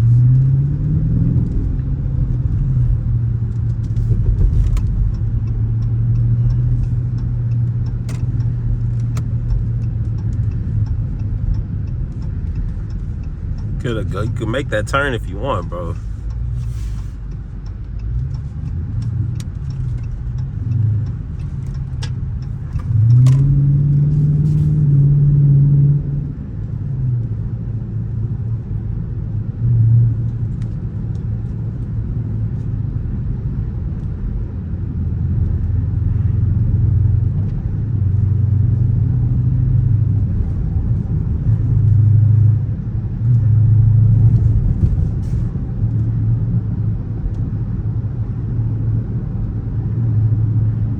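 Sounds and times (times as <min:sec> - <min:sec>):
car engine accelerating: 0:00.0 - 0:32.2.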